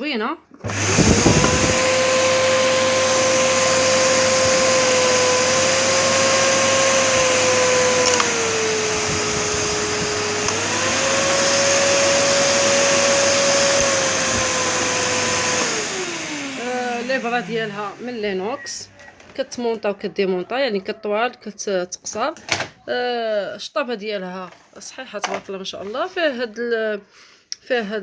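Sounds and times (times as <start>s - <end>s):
vacuum cleaner motor whine: 0.6s - 19.9s.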